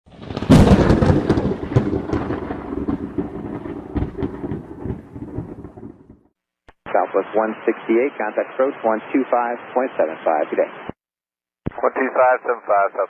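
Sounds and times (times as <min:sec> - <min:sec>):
thunder crack and rumble: 0:00.1 - 0:06.3.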